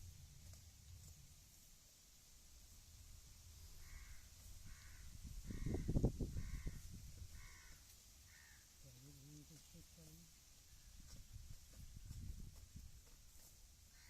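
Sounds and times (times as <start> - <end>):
crow cawing: 3.8 - 8.7.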